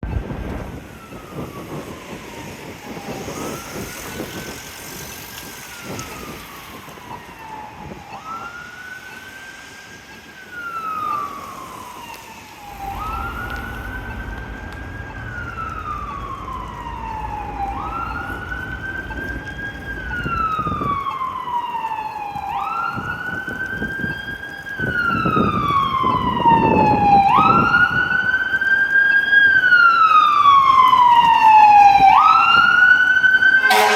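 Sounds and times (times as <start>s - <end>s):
fire engine siren wailing: 0.0s - 33.9s
low vehicle rumble: 10.7s - 28.4s.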